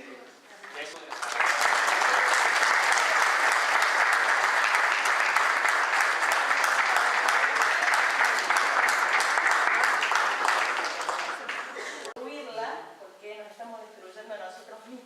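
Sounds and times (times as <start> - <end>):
audience applauding: 0.6 - 12.2.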